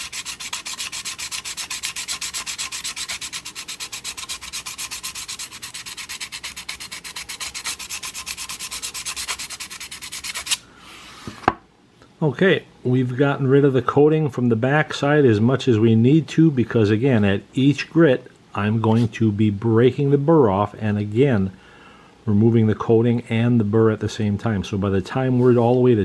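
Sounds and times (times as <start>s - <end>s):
blade scraping on sharpening plate: 0.0s - 10.6s.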